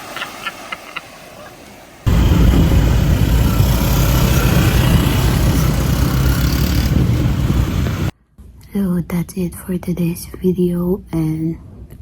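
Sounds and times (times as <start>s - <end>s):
wind and water hiss: 0.0s - 8.1s
boat engine rumbling: 2.1s - 8.1s.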